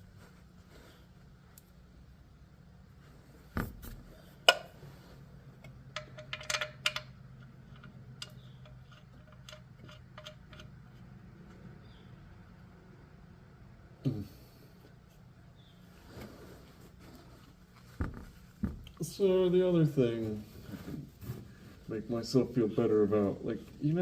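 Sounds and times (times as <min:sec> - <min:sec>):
metal hand tools clinking: 0:05.9 - 0:10.8.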